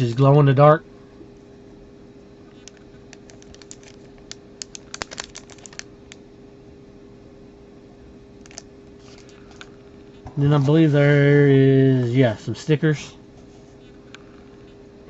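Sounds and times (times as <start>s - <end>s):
faint steady hum: 0.0s - 15.0s
packaging clicks and taps: 2.6s - 5.8s.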